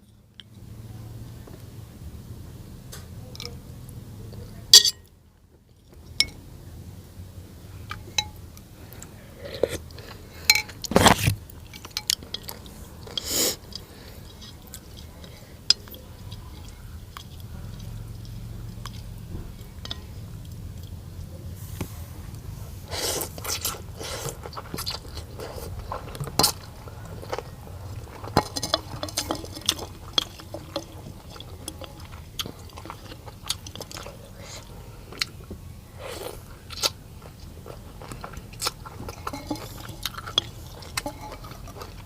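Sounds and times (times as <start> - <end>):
cutlery clinking on bowl: 4.8 - 5.1, 7.9 - 8.4, 10.5 - 10.8, 28.2 - 32.1, 39.0 - 42.0
person chewing: 7.9 - 21.4, 22.8 - 42.0.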